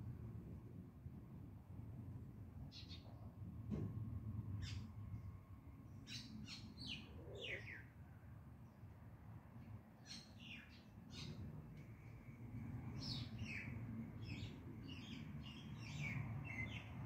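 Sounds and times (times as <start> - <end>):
small birds chirping: 2.7 - 3.2, 5.9 - 7.9, 10.0 - 11.5, 12.9 - 17.0.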